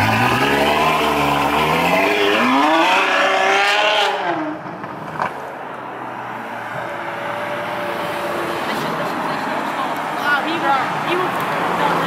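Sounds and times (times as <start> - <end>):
car engine accelerating: 0.0 - 5.3.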